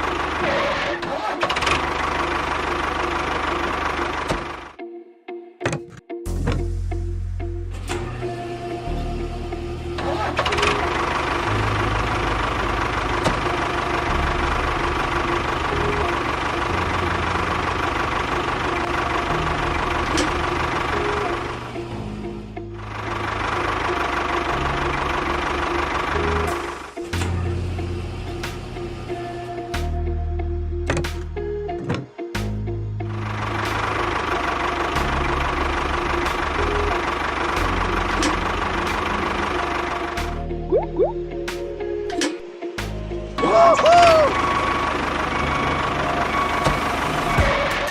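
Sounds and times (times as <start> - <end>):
small engine idling with knocking: 1.5 - 4.8, 10.2 - 21.7, 22.8 - 26.8, 33.2 - 40.4.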